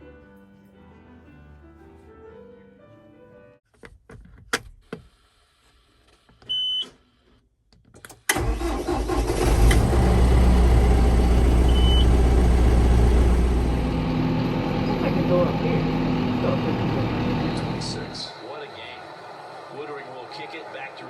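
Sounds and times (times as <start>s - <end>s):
tractor diesel engine starting: 8.3s - 21.0s.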